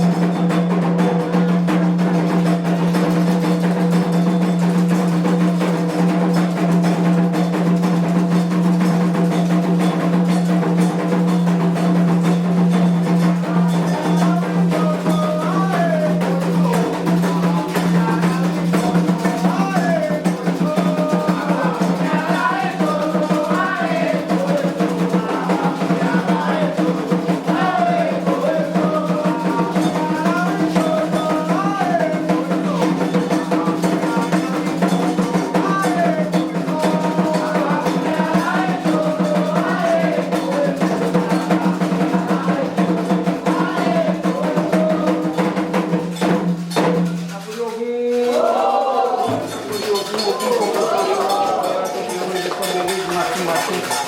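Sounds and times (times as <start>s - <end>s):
hand drums drumming: 0.0s - 54.0s
person singing: 13.3s - 45.6s.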